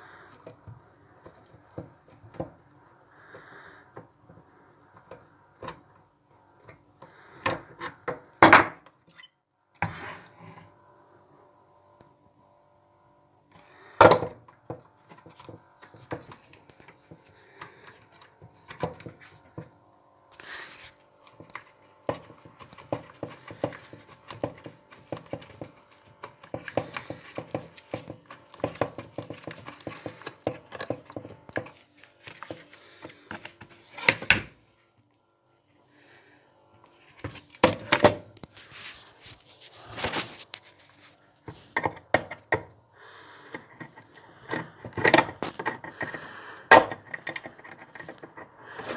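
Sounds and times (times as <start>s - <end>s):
clicks taps and scrapes: 14.0s - 34.3s, 43.5s - 48.9s.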